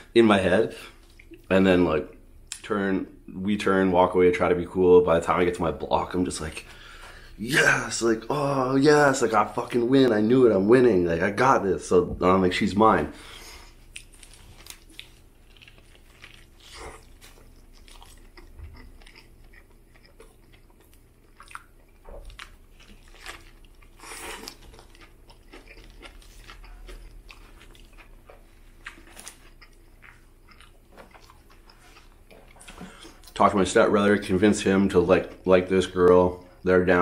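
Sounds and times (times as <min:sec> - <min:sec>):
wet chewing: 0:13.6 - 0:33.4
crusty bread crunching: 0:13.7 - 0:32.2.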